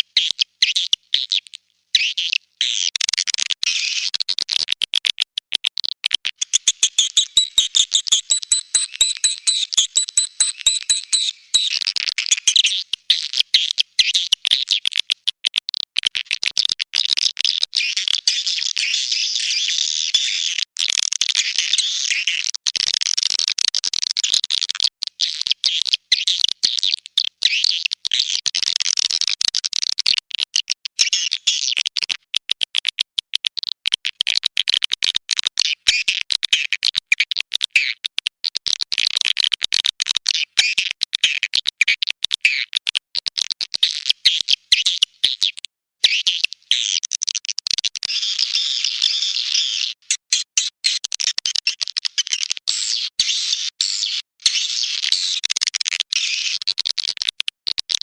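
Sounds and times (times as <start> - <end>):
high-pitched twittering bird chirps: 6.4 - 12.8.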